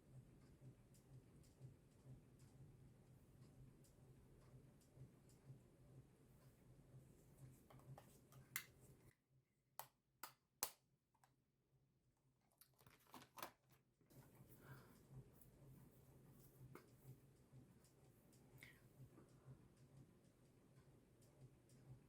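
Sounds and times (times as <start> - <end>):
clicks of makeup cases: 12.6 - 13.6.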